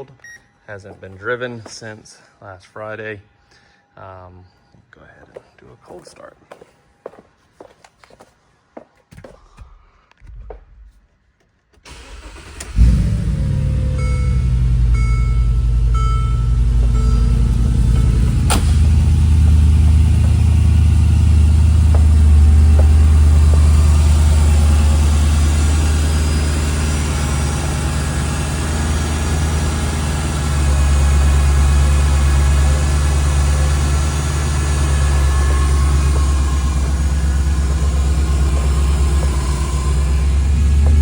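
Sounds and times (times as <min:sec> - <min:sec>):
car engine fast idle: 0:11.9 - 0:41.0.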